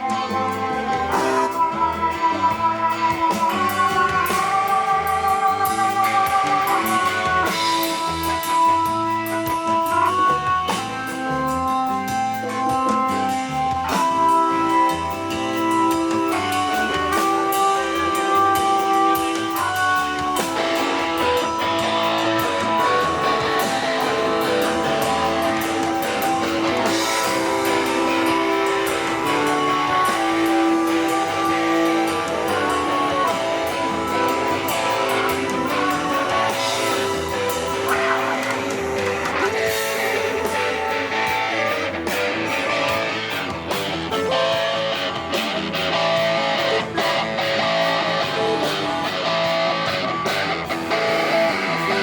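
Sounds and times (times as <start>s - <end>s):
electric guitar chords: 0.0s - 52.0s
live band playing: 0.0s - 52.0s
drums striking: 3.1s - 52.0s.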